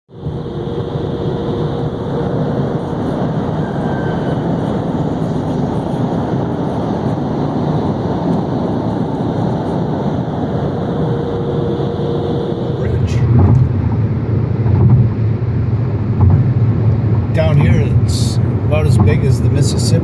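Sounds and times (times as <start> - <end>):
vehicle running: 0.1 - 20.0.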